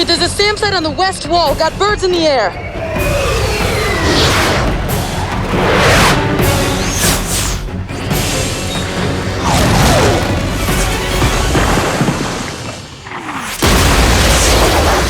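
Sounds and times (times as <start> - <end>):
action film score: 0.0 - 15.0
jet and missile effects: 0.0 - 15.0
falling whooshes: 2.3 - 15.0
loud explosion blast: 13.6 - 15.0.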